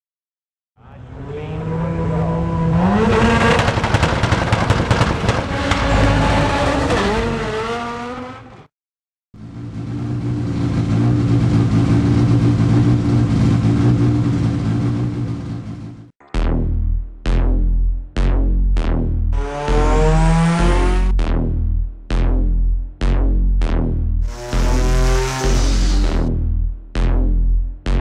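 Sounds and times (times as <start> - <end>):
car engine revving: 1.0 - 8.6, 9.4 - 17.4, 18.8 - 21.6, 24.2 - 26.4.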